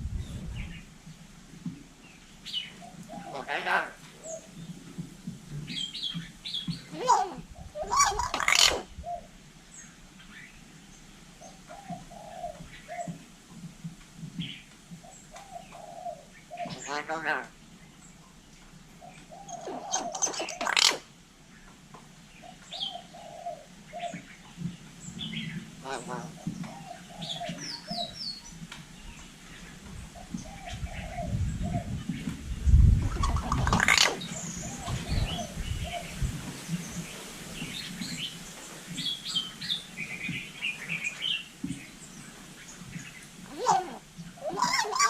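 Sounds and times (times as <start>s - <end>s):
bird squawking: 6.9s - 8.9s, 19.4s - 21.1s, 33.1s - 35.5s, 43.5s - 45.0s
myna chirping and whistling: 7.1s - 8.9s, 19.4s - 21.0s
bird whistling: 19.5s - 21.0s.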